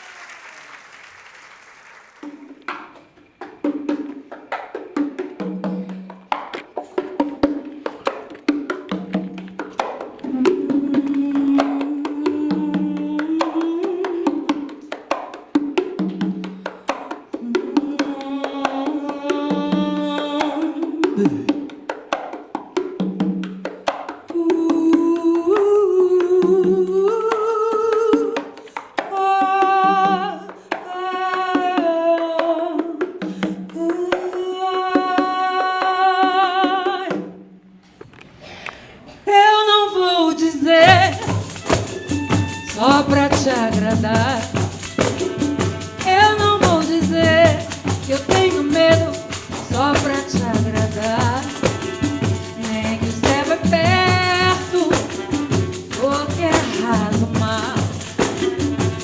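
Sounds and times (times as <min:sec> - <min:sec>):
wavering wordless melody: 0:40.4 - 0:59.0
frame drums with jingles: 0:40.7 - 0:59.0.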